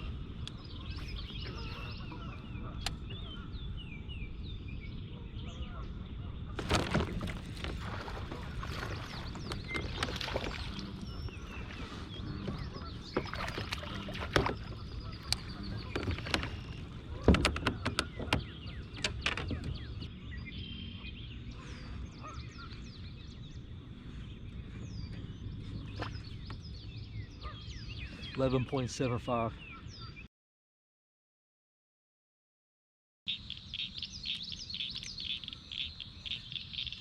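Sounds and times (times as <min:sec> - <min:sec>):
birds chirping: 0:00.0 - 0:30.3, 0:33.3 - 0:37.0
knocks and clicks of gear: 0:15.2 - 0:20.1.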